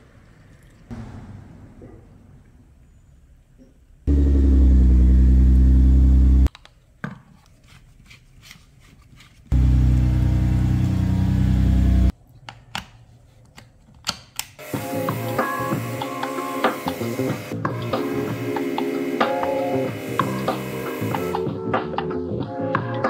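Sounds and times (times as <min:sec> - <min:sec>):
car engine running: 0:04.1 - 0:06.5, 0:09.6 - 0:12.1.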